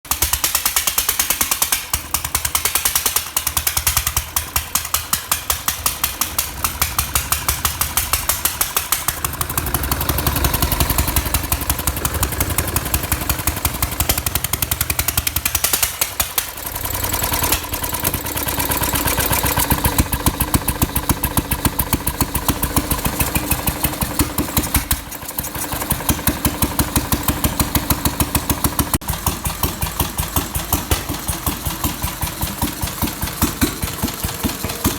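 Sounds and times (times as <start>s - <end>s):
single-cylinder engine running: 0.1s - 34.9s.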